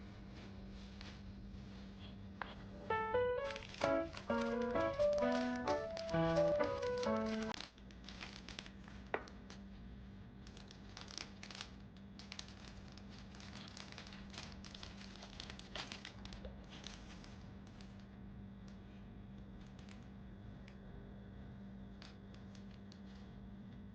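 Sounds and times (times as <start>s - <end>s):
crinkling of handled material: 0.2s - 20.9s
small clicks: 2.9s - 8.6s.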